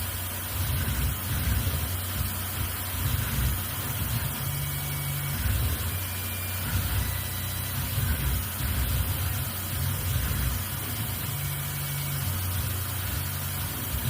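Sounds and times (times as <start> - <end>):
milling machine rumbling: 0.0 - 14.0.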